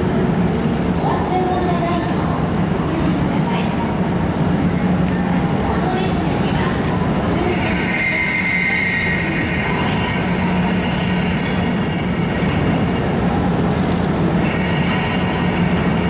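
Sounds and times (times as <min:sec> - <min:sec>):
train low rumble: 0:00.0 - 0:16.0
steel wheel squeal: 0:07.4 - 0:12.7, 0:14.4 - 0:15.8.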